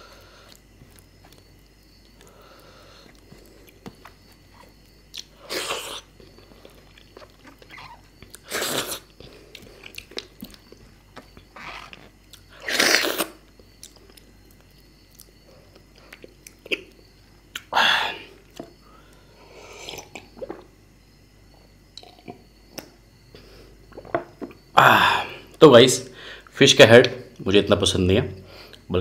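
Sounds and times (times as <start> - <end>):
person chewing food: 0.4 - 17.7.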